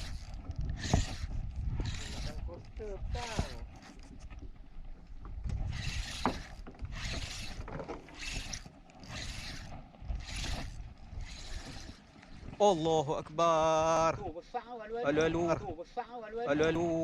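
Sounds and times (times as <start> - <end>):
fishing reel cranking: 0.0 - 4.3, 5.6 - 12.5.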